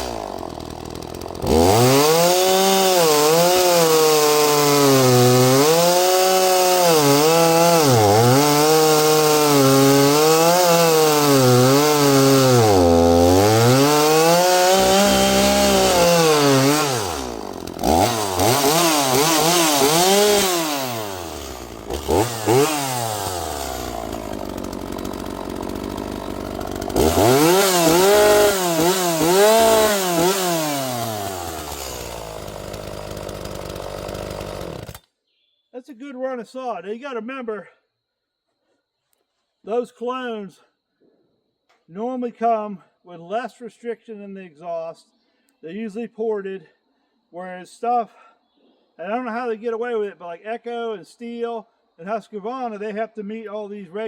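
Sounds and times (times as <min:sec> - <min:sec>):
chainsaw cutting a log: 0:00.0 - 0:35.1
chainsaw revving and idling: 0:00.0 - 0:35.1.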